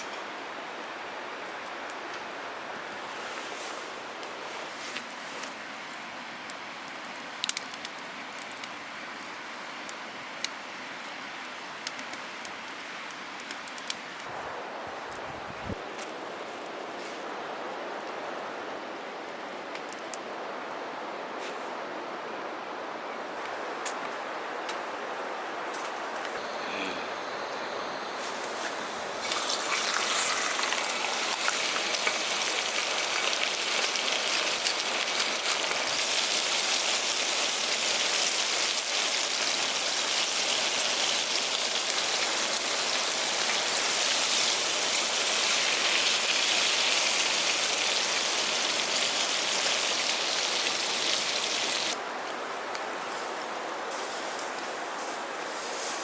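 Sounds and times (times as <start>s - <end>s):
beef sizzling and crackling: 28.0s - 52.0s.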